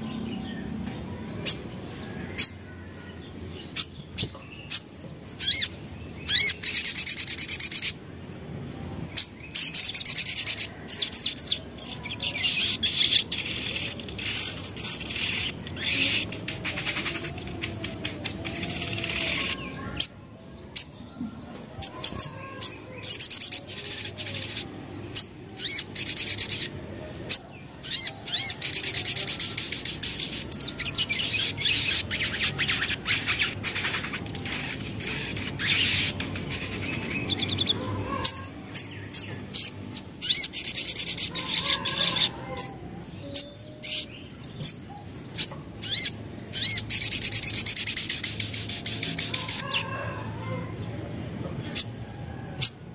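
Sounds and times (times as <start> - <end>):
bird chirping trills: 9.2 - 50.0.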